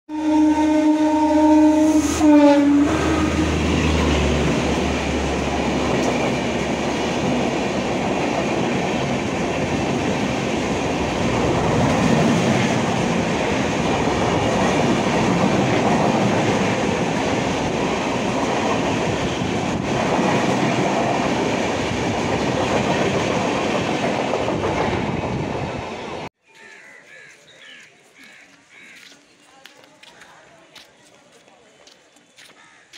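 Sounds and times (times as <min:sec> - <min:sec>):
train horn: 0:00.1 - 0:03.6
train wheels rumbling and rattling: 0:02.8 - 0:26.1.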